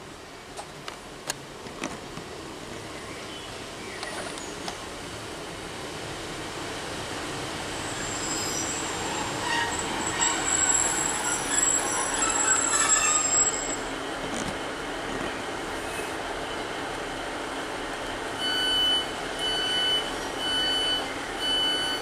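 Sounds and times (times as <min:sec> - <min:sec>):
train engine and rail noise: 0:00.0 - 0:22.0
high-pitched brake squeal: 0:07.9 - 0:14.0.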